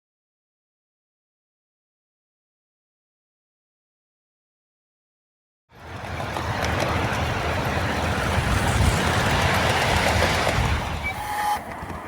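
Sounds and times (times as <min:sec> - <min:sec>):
miniature train rumbling: 0:05.7 - 0:12.0.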